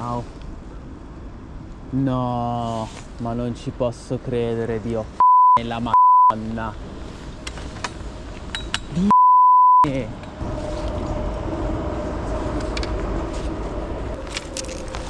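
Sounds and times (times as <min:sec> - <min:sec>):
censor bleep: 0:05.2 - 0:06.4, 0:09.1 - 0:09.9
low rumbling noise: 0:09.8 - 0:15.0.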